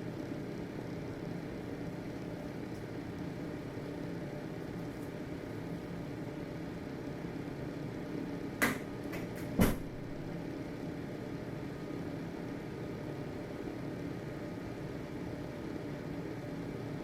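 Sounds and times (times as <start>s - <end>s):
ventilation fan humming: 0.0s - 17.0s
sharp knocks: 8.6s - 9.9s.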